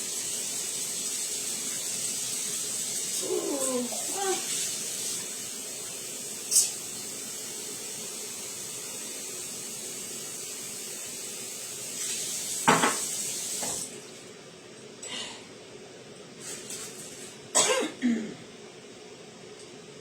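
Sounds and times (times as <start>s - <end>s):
steady hiss: 0.0s - 14.4s.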